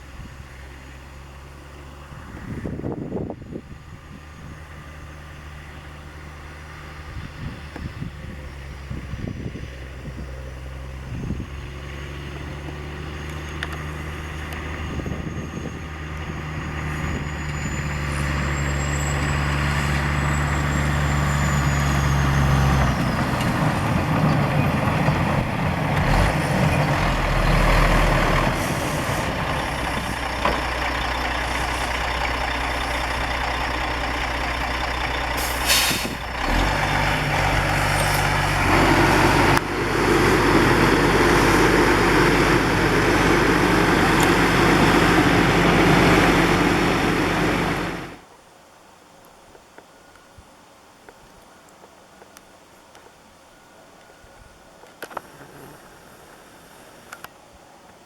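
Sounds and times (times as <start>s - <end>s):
truck diesel engine running: 10.0s - 48.2s
short hiss: 35.4s - 36.3s.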